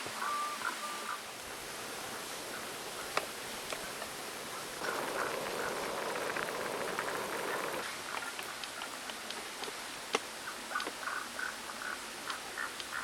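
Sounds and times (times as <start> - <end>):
stream water running: 0.0 - 13.0
small animal calls: 3.8 - 9.0.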